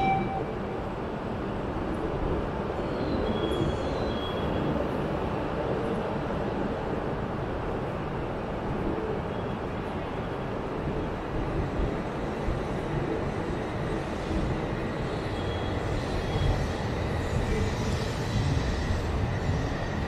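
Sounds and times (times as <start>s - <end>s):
train running on tracks: 0.0s - 20.0s.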